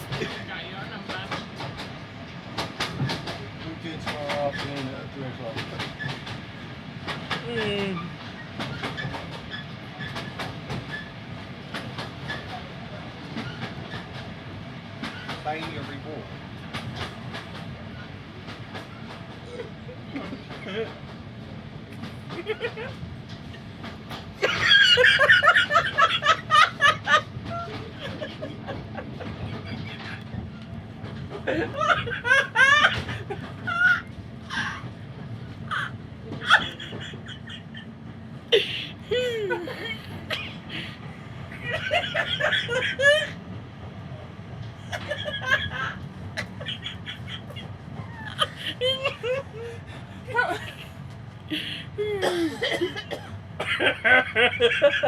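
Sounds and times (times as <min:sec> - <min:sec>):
train coach rumbling on track: 0:00.0 - 0:55.0
wheels clicking over rail joints: 0:21.9 - 0:37.7
laughter in short bursts: 0:44.9 - 0:49.8.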